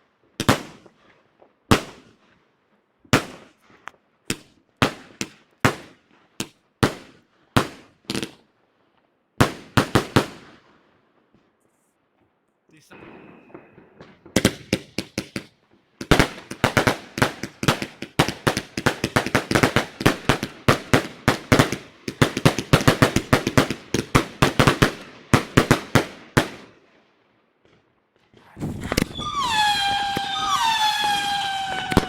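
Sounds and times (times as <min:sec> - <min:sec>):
firework bangs: 0:12.9 - 0:26.6, 0:28.2 - 0:32.0
whistling tone: 0:29.0 - 0:32.0.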